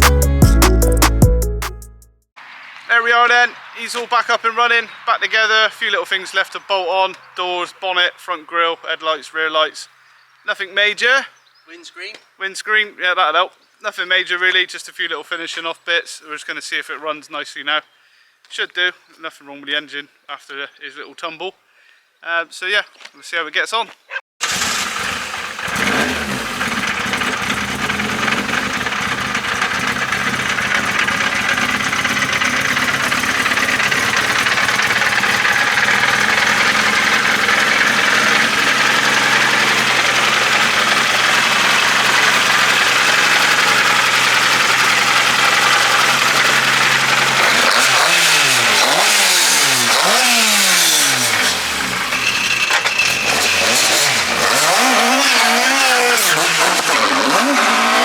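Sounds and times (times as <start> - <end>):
car engine idling: 24.4 - 56.9
car engine revs blipped: 24.4 - 58.0.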